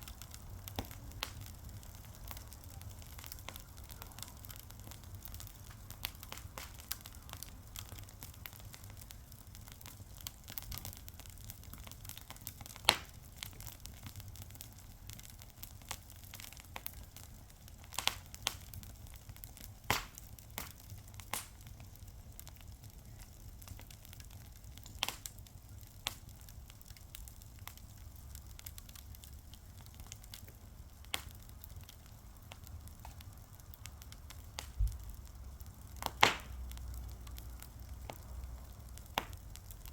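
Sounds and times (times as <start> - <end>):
fire crackling and popping: 0.0 - 39.9
faint low rumble: 25.5 - 39.9.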